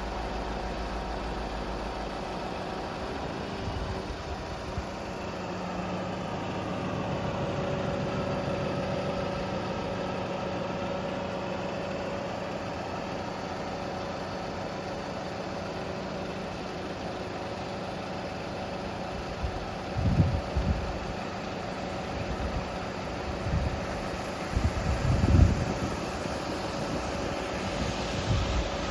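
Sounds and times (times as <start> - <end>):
diesel engine idling: 0.0 - 28.9.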